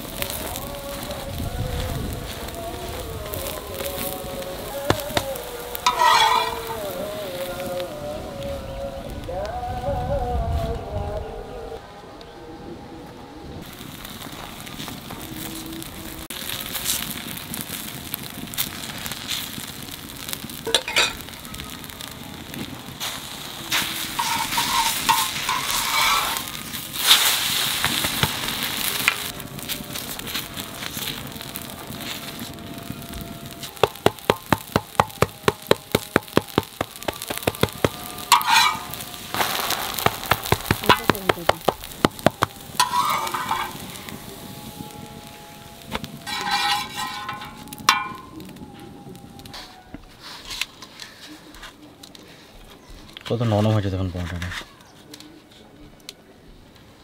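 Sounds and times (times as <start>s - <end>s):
food sizzling on a griddle: 0.0s - 10.7s, 13.6s - 54.9s
metal utensils scraping and tapping: 5.8s - 6.8s, 20.7s - 21.2s, 23.7s - 27.2s, 37.3s - 39.0s, 42.0s - 43.9s, 46.2s - 48.3s.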